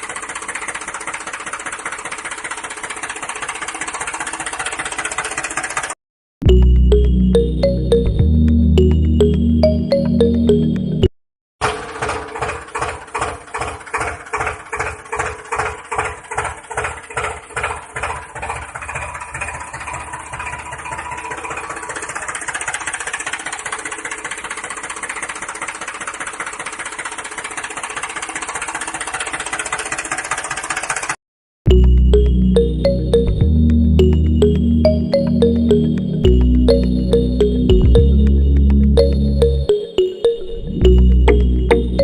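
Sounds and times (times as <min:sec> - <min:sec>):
small motor clattering and buzzing: 0:00.0 - 0:06.0, 0:11.6 - 0:31.2.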